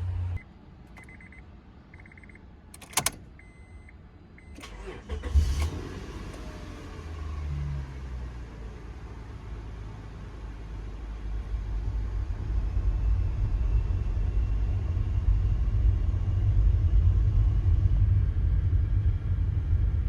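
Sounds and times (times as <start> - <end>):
car engine starting and idling: 0.0 - 12.9.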